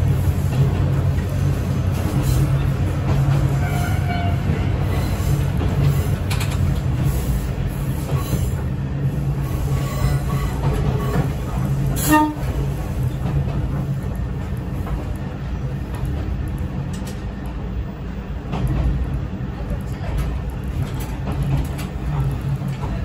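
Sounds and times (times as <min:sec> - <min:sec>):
train engine and wheels rumbling: 0:00.0 - 0:23.0
train horn toot: 0:03.5 - 0:04.8, 0:12.0 - 0:12.5.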